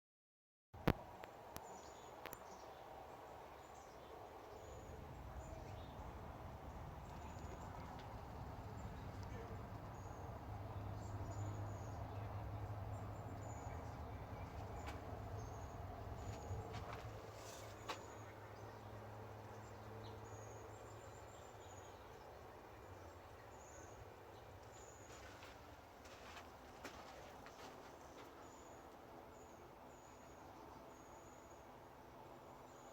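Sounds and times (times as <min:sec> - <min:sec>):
low outdoor background: 0:00.8 - 0:32.9
steady low rumble: 0:04.8 - 0:17.3.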